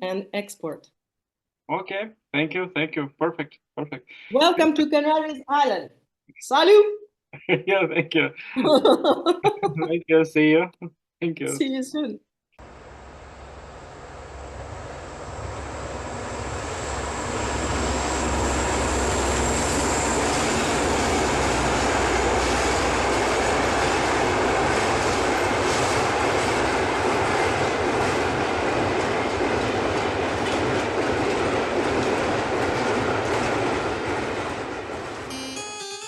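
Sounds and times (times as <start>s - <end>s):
train running on rails: 12.7s - 35.8s.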